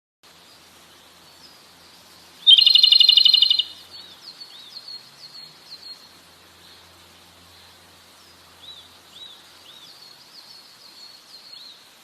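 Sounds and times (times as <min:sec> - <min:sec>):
bird trilling: 0:02.4 - 0:03.8
bird whistled notes: 0:02.5 - 0:03.8.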